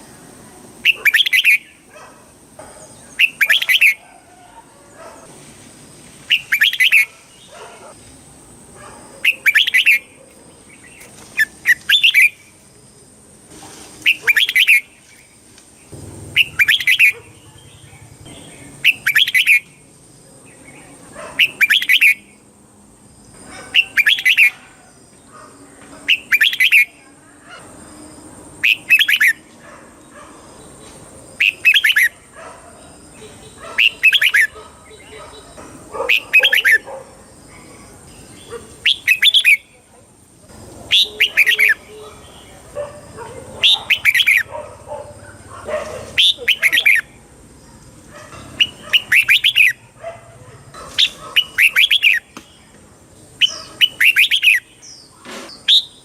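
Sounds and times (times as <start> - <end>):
bird singing short phrase: 15.9 - 19.7.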